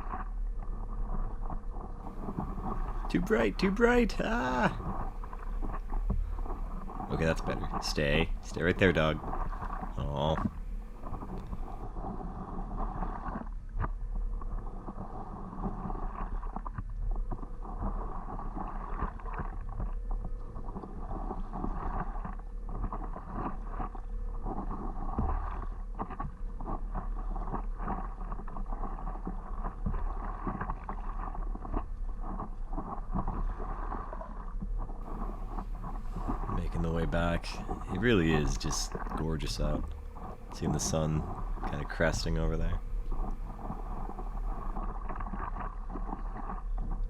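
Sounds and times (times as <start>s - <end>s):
water lapping around paddleboard: 0.0s - 47.0s
small paddle splashes: 35.1s - 36.6s.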